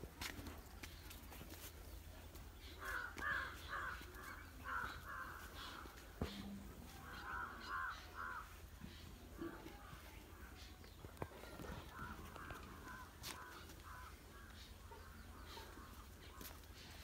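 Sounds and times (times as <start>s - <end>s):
bird harsh calls: 2.6s - 9.2s.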